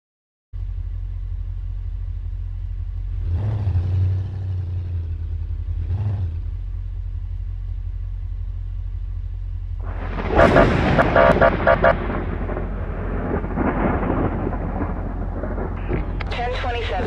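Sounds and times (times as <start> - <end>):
car engine and road noise: 0.6 - 17.0
broad rushing noise: 9.8 - 17.0.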